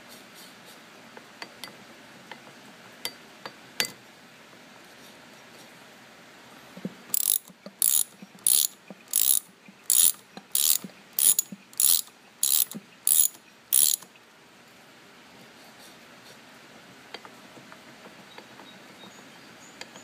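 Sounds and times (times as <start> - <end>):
metal mechanism ratcheting: 7.1 - 14.1.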